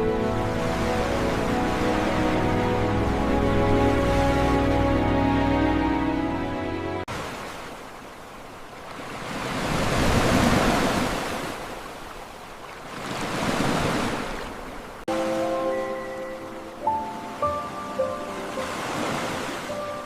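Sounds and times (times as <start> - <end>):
music: 0.0 - 7.1, 15.1 - 20.0
ocean waves surging: 0.0 - 20.0.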